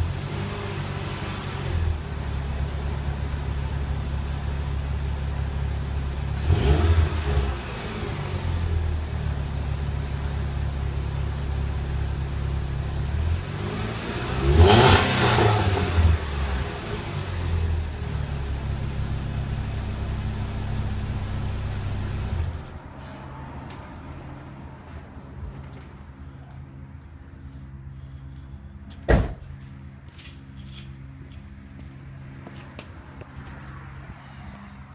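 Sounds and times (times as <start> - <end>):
car engine idling and revving: 0.0 - 28.6
loud thump: 29.1 - 29.4.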